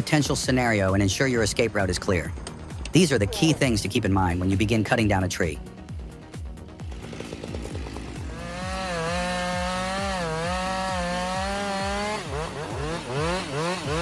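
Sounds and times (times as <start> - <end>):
chainsaw cutting: 6.1 - 14.0.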